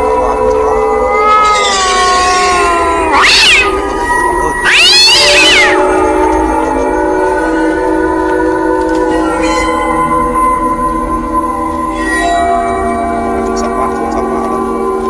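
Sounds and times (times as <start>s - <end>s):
background music: 0.0s - 15.0s
cat meowing: 0.2s - 6.9s.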